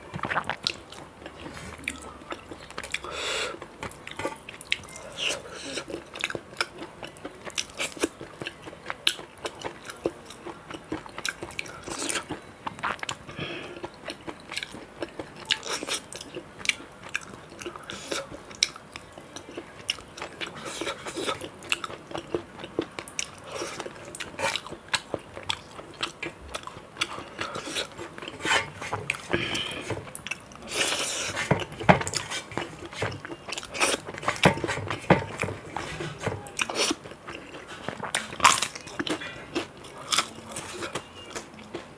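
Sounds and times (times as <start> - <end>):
mouth clicks and smacks: 0.0 - 1.1, 12.8 - 13.2
person chewing crunchy food: 0.0 - 41.9.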